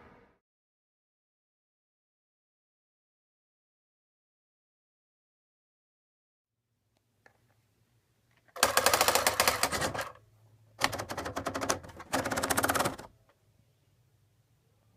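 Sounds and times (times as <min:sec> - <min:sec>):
rapid mechanical clicking: 0:08.5 - 0:10.2, 0:10.8 - 0:13.1
faint low hum: 0:13.1 - 0:14.9.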